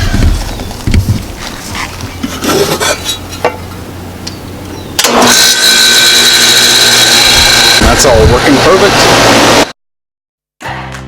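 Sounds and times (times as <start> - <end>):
condenser unit whirring: 3.0 - 9.7.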